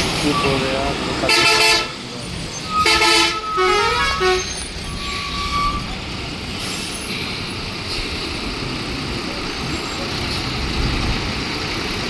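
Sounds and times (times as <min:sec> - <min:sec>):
vehicle horns honking: 0:00.3 - 0:02.0, 0:02.7 - 0:05.9.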